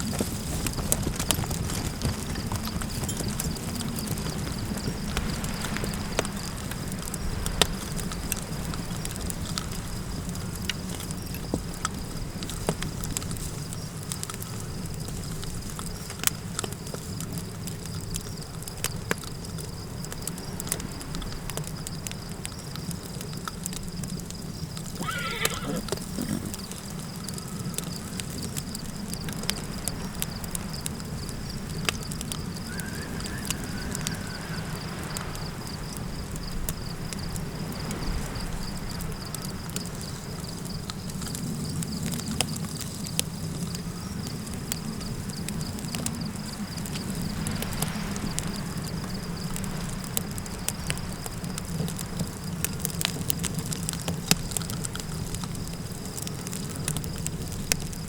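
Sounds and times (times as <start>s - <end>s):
high insect tone: 0.0s - 51.6s
campfire crackling and popping: 0.0s - 58.0s
low wind rumble: 0.0s - 58.0s
short animal call: 25.0s - 26.6s.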